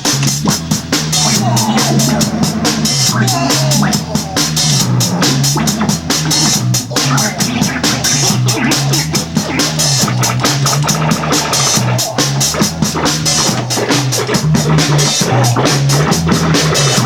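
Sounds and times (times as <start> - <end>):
drum kit fast beat: 0.0 - 17.0.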